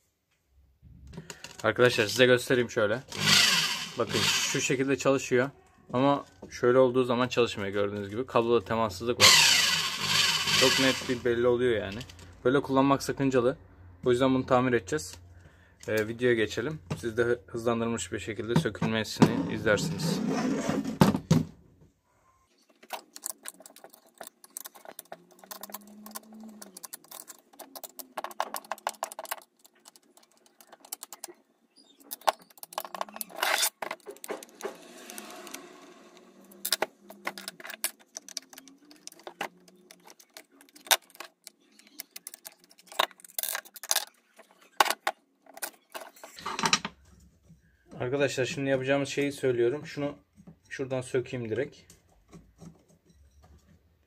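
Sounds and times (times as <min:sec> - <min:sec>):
clicks and rattles of screws and tools: 0:01.1 - 0:02.3, 0:22.6 - 0:35.6, 0:36.5 - 0:48.0, 0:51.8 - 0:54.0.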